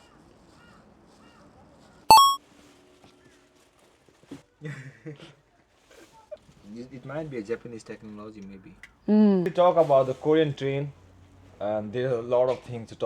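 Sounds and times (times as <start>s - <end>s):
loud high-pitched beep: 2.1s - 2.4s.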